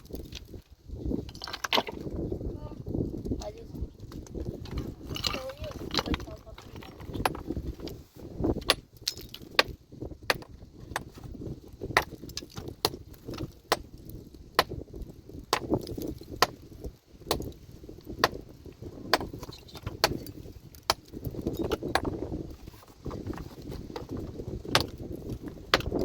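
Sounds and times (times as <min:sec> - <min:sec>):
metal tool striking rock: 0:08.6 - 0:11.1, 0:11.9 - 0:13.9, 0:14.6 - 0:14.8, 0:15.5 - 0:16.6, 0:17.3 - 0:17.6, 0:18.2 - 0:18.4, 0:19.1 - 0:22.2, 0:24.7 - 0:26.0.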